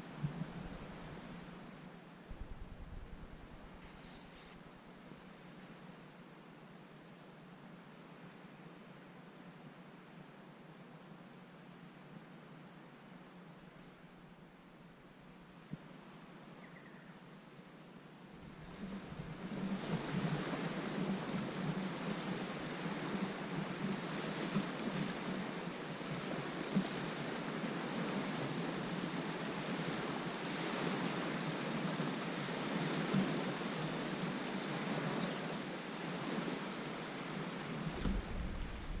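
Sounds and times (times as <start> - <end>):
waves washing against shore: 0.0 - 5.6, 18.4 - 39.0
wind: 0.0 - 39.0
low rumble: 2.3 - 4.1, 37.9 - 39.0.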